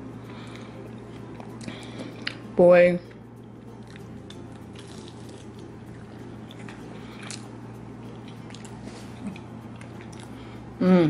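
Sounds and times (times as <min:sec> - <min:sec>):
steady low hum: 0:00.0 - 0:11.0
person chewing: 0:00.3 - 0:02.4, 0:03.6 - 0:10.8.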